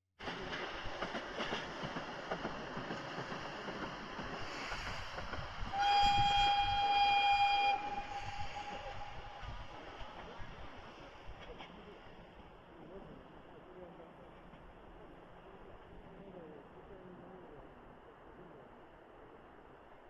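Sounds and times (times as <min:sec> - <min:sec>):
railcar running on rails: 0:00.2 - 0:20.0
train horn: 0:05.7 - 0:10.2.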